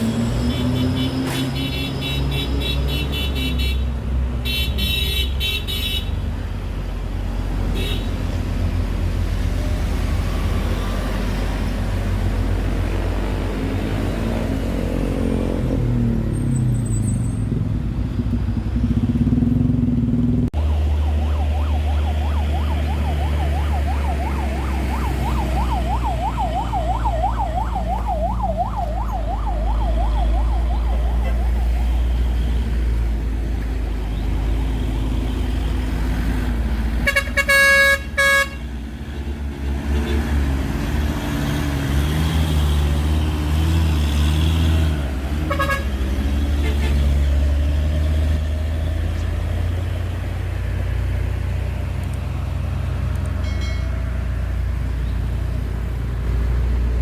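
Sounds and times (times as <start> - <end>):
heavy road traffic: 0.0 - 57.0
vehicle horn blaring: 0.5 - 6.2, 7.8 - 8.2, 37.0 - 38.7, 45.5 - 45.9, 46.6 - 47.0
siren warbling: 20.6 - 32.2.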